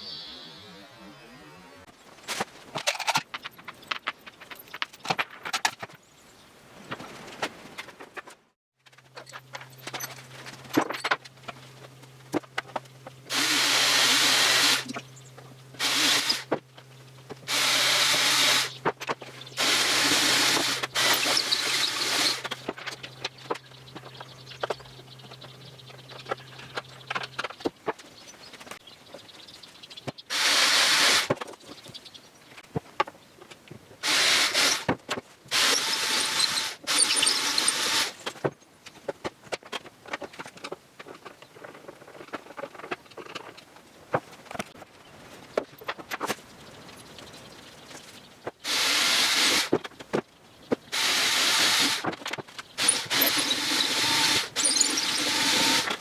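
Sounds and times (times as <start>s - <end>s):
power tool running: 13.2s - 15.1s, 15.7s - 16.6s, 17.4s - 23.6s, 30.3s - 31.4s, 34.0s - 34.9s, 35.5s - 38.3s, 48.7s - 49.7s, 50.9s - 52.1s, 52.8s - 56.0s.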